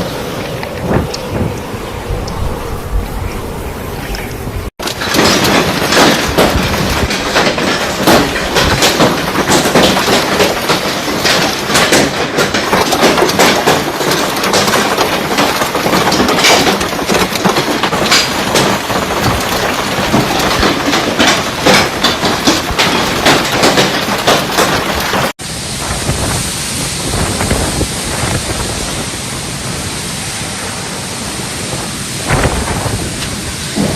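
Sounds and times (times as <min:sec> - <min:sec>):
hailstones pelting hard surfaces: 0:04.8 - 0:29.9, 0:32.3 - 0:33.9.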